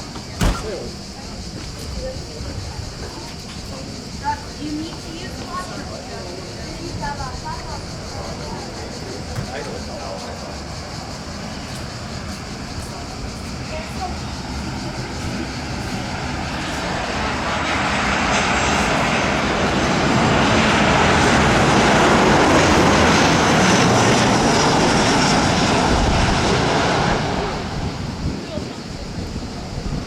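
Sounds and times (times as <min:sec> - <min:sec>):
jet engines passing: 0:00.0 - 0:30.0.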